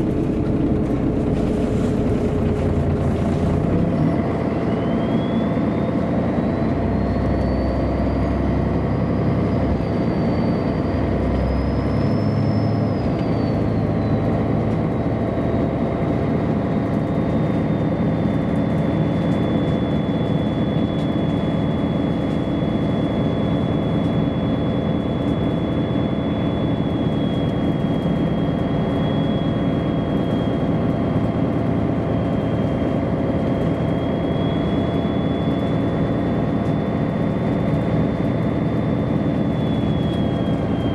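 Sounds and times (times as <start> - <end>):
bus engine and road hum: 0.0 - 40.9.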